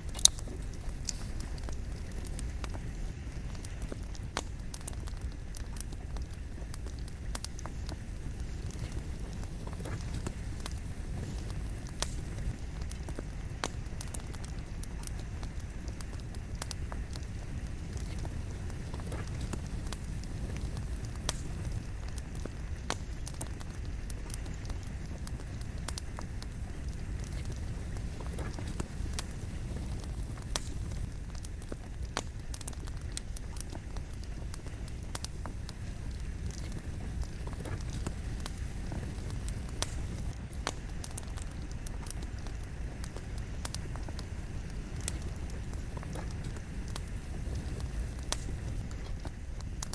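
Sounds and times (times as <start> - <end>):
campfire flame rumble: 0.0 - 49.9
firewood crackling and popping: 0.0 - 49.9.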